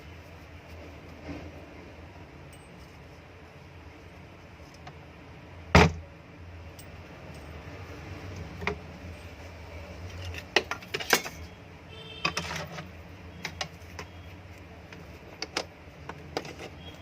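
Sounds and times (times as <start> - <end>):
low electrical hum: 0.0 - 17.0
clicks and metallic clatter: 10.1 - 11.5, 12.2 - 14.2.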